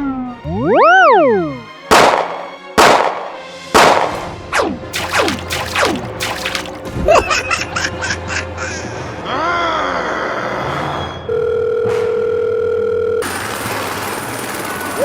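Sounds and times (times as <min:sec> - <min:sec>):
cartoon sharp hits: 0:05.0 - 0:06.9.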